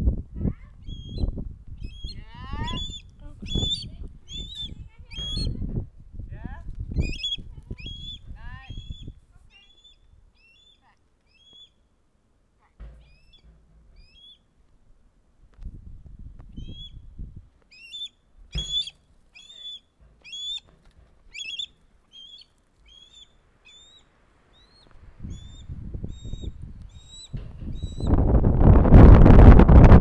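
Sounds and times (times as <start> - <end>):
wind noise on microphone: 0.0 - 10.3, 15.4 - 17.6, 24.8 - 30.0
bird chirping: 0.8 - 5.6, 6.8 - 11.8, 13.0 - 14.5, 16.5 - 17.1, 17.7 - 28.2
low rumbling: 25.0 - 30.0.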